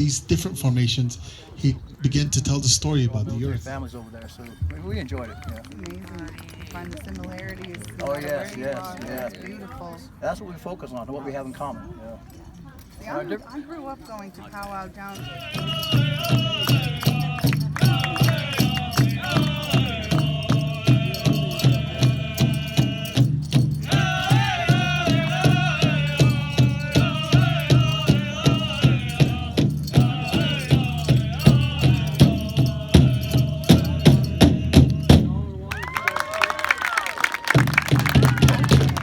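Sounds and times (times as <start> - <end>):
group singing: 15.1 - 35.6
steady drumbeat: 15.1 - 35.9, 37.5 - 39.0.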